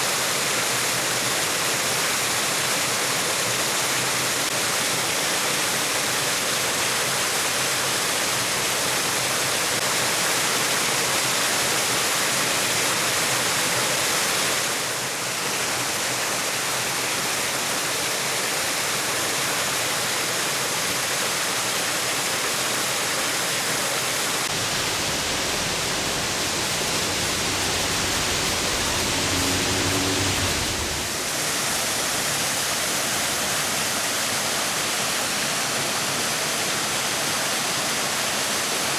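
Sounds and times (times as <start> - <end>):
waterfall rushing: 0.0 - 38.9
low rumble: 24.5 - 33.0.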